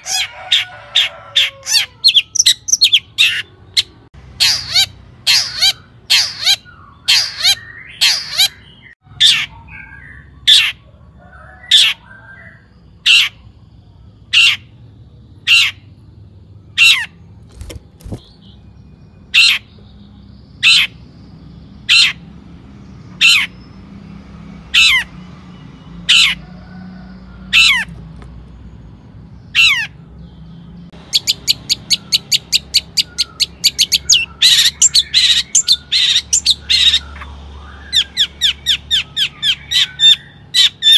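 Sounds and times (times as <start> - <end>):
bird harsh calls: 0.0 - 13.6, 14.2 - 14.8, 15.4 - 16.0, 16.6 - 18.6, 19.2 - 21.2, 21.8 - 22.4, 23.1 - 23.8, 24.6 - 28.2, 29.4 - 40.9.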